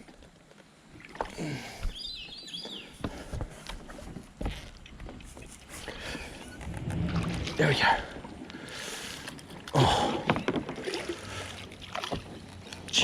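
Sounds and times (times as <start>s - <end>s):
bird chirping: 1.9s - 3.0s.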